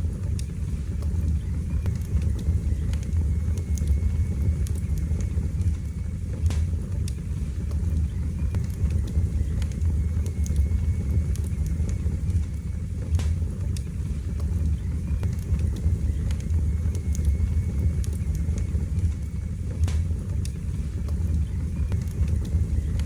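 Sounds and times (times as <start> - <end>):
fireplace fire crackling: 0.0 - 23.0.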